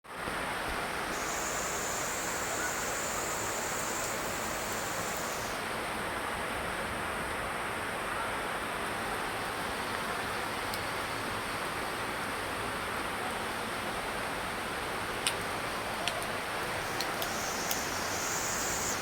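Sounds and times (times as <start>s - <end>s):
steady rain hiss: 0.1s - 19.0s
thin high whine: 1.1s - 5.7s, 16.8s - 19.0s.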